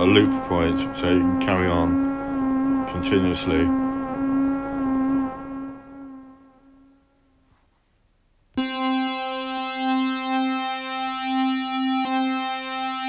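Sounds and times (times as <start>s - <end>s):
synthesizer notes: 0.0s - 7.1s, 8.6s - 13.0s
bright held synth note: 8.6s - 13.0s.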